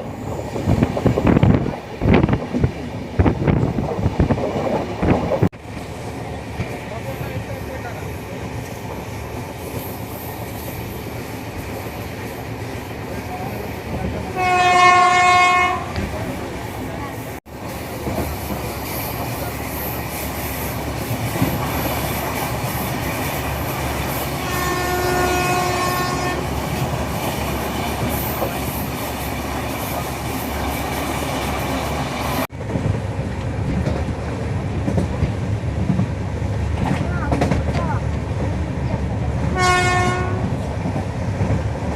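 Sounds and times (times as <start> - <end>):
train running on rails: 0.0 - 41.9
train horn blast: 14.3 - 16.1, 24.4 - 26.5, 39.5 - 40.5.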